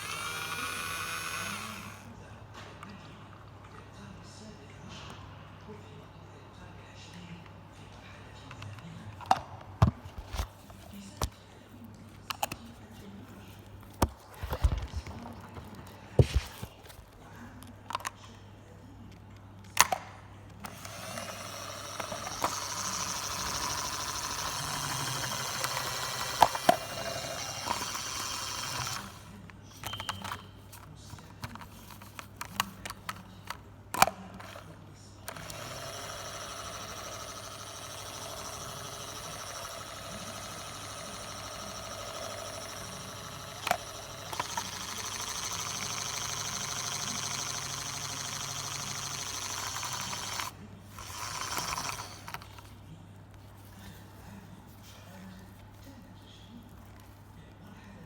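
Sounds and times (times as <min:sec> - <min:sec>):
small motor whirring: 0:00.0 - 0:02.1, 0:20.6 - 0:30.4, 0:34.4 - 0:52.7
toy clicks and knocks: 0:35.3 - 0:52.6.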